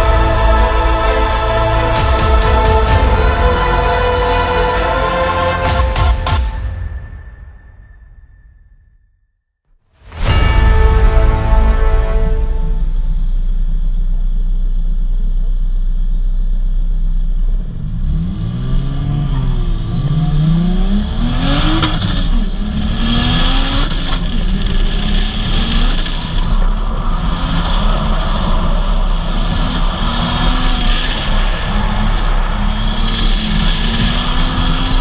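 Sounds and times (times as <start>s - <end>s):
high turbo whine: 10.0s - 35.0s
car engine revving: 11.4s - 35.0s.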